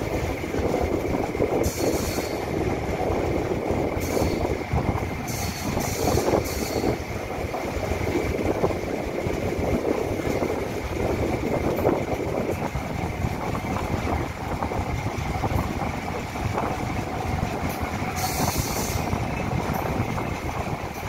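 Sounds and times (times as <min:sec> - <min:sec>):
train wheels clattering on rail: 0:00.0 - 0:21.0.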